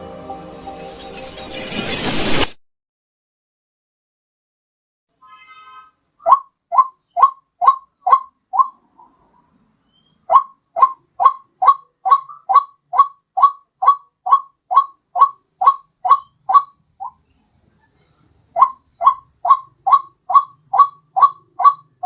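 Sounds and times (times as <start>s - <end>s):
waterhen calling: 5.2s - 9.2s, 9.9s - 17.2s, 18.6s - 22.0s.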